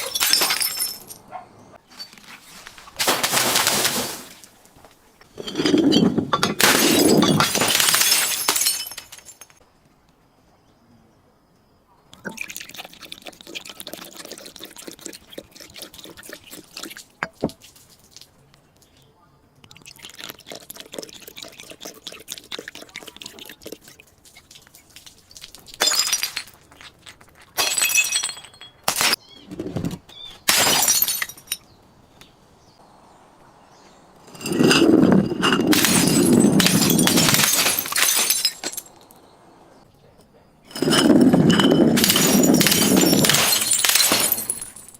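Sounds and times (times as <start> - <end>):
glass breaking and crunching: 0.0 - 1.2, 2.9 - 4.5, 5.2 - 9.6, 25.7 - 29.2, 30.4 - 31.6, 34.2 - 39.2, 40.7 - 44.9.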